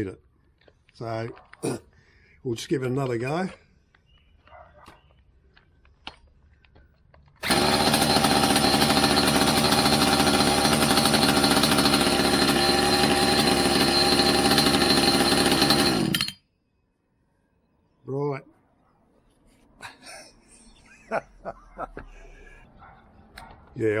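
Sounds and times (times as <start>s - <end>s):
electric drill running at high speed: 7.4s - 16.3s.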